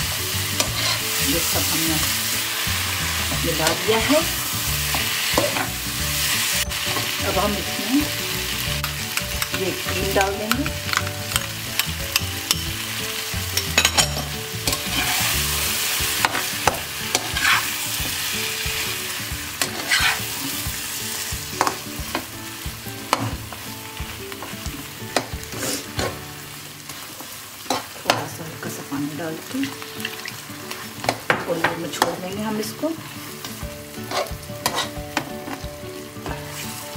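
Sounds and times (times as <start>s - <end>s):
food sizzling in a pan: 0.0s - 36.9s
metal spatula scraping a pan: 0.6s - 1.2s, 13.6s - 15.5s, 16.2s - 17.8s, 19.6s - 20.6s, 25.2s - 26.2s, 34.0s - 35.0s.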